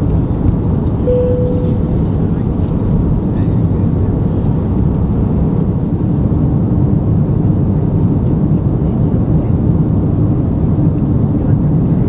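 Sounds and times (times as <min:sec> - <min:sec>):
airplane cabin rumble: 0:00.0 - 0:09.5.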